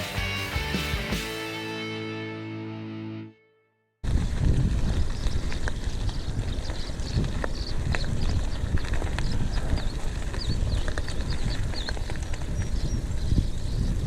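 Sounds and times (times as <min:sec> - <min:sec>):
bike tyre noise on dirt: 0:04.0 - 0:14.0
wind rumble on microphone: 0:04.0 - 0:14.0
bird chirping: 0:05.1 - 0:14.0.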